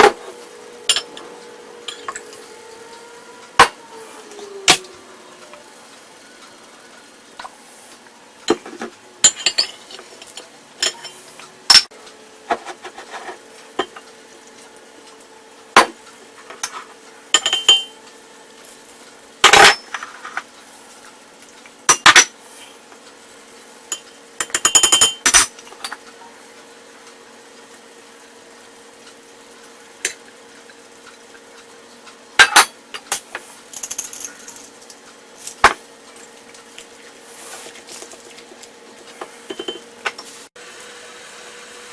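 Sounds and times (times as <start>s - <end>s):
faint steady hum: 0.0s - 41.9s
utensils clinking on dishes: 0.9s - 2.6s, 8.4s - 11.9s, 16.4s - 18.0s, 19.4s - 20.5s, 21.9s - 22.7s, 23.9s - 26.0s, 32.4s - 35.8s, 39.2s - 40.4s.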